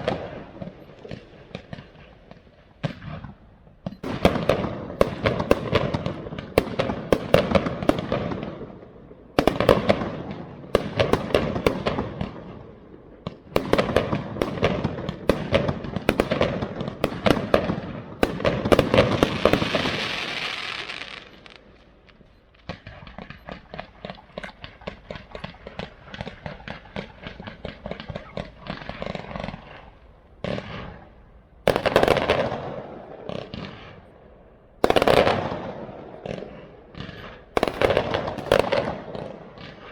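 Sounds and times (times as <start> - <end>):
firework bangs: 0.0 - 34.1, 34.8 - 39.9
firework crackling: 13.4 - 32.5.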